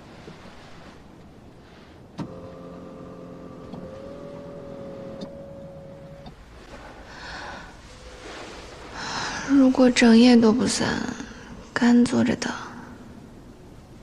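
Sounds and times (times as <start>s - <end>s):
small electric motor whining: 2.2s - 6.3s.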